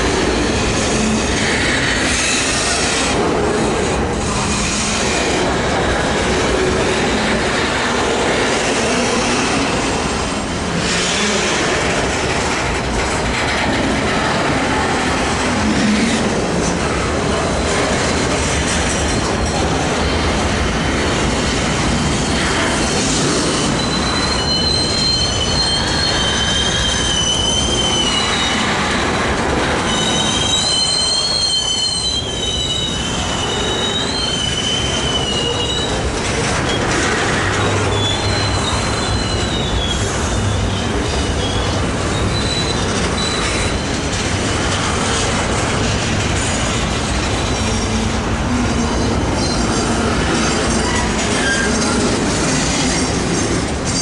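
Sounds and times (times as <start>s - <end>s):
train cars rumbling past: 0.0s - 54.0s
wheels squealing: 22.2s - 29.1s, 29.8s - 45.8s, 47.3s - 54.0s.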